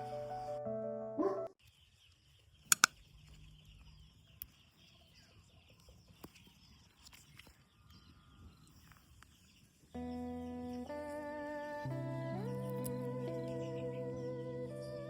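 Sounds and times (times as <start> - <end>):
sharp clicks: 2.6 - 3.0.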